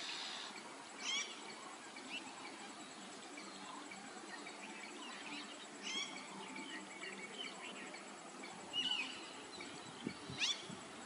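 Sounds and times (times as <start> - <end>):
background hiss: 0.0 - 11.0
birds chirping: 0.0 - 11.0.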